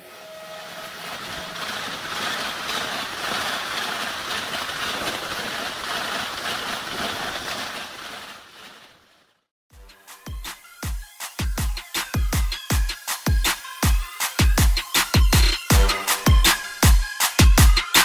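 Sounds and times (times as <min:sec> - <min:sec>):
passenger train passing at speed: 0:00.0 - 0:08.5, 0:15.7 - 0:17.3.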